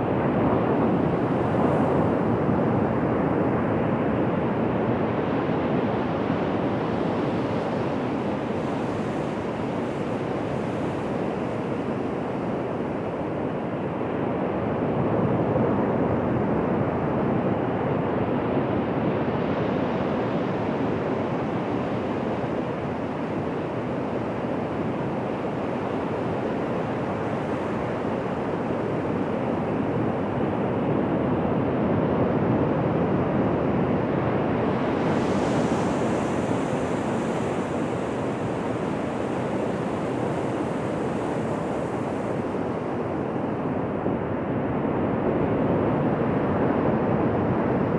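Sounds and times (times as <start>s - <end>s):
ocean surf on beach: 33.8s - 47.8s.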